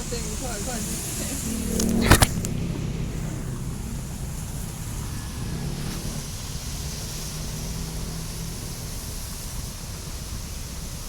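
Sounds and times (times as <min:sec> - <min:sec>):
heavy rain hissing: 0:00.0 - 0:11.0
low rumble: 0:00.4 - 0:07.4.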